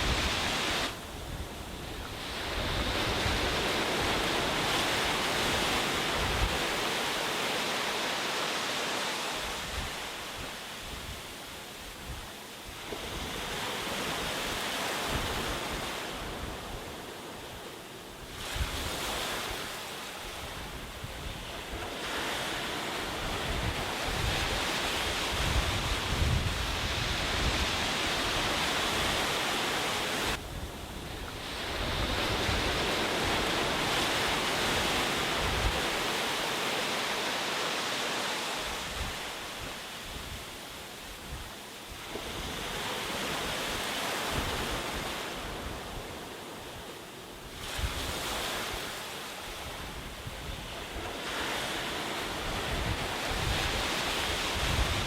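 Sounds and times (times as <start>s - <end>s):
sea waves breaking on a beach: 0.0s - 55.0s
wind buffeting microphone: 20.3s - 36.2s, 49.5s - 55.0s.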